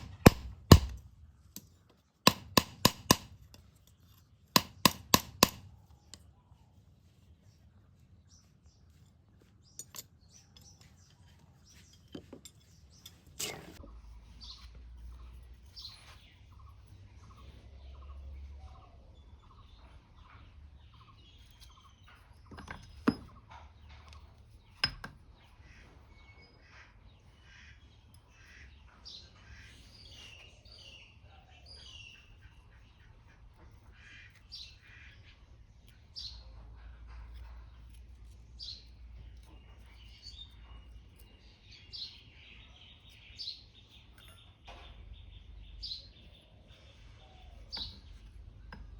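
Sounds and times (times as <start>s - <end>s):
sharp knocks: 0.0s - 1.0s
birds chirping: 0.0s - 48.9s.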